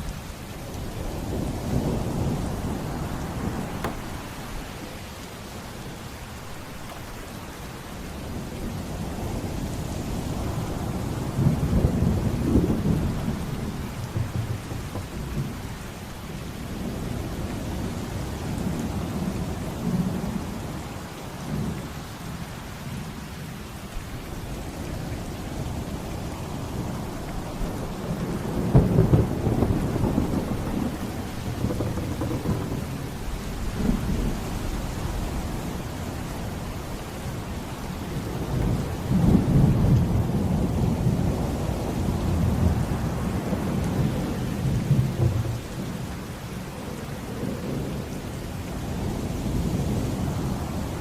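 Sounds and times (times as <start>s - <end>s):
steady rain: 0.0s - 51.0s
rolling thunder: 28.3s - 34.3s.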